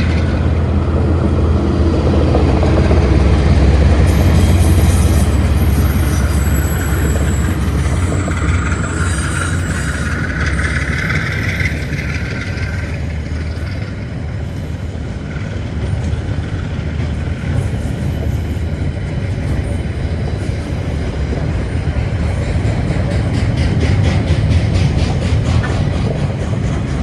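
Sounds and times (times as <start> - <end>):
locomotive engine rumble: 0.0 - 27.0
wheels clicking over rail joints: 0.0 - 27.0
high squeal: 3.9 - 14.9.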